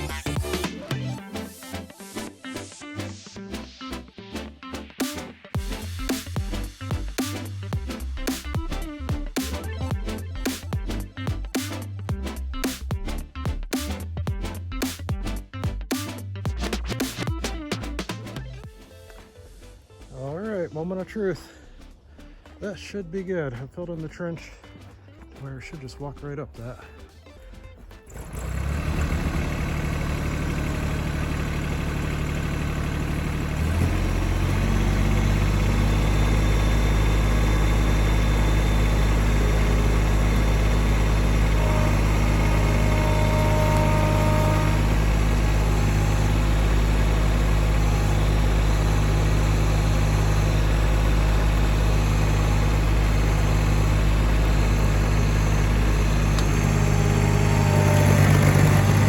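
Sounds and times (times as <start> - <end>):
tractor engine running: 28.0 - 59.0.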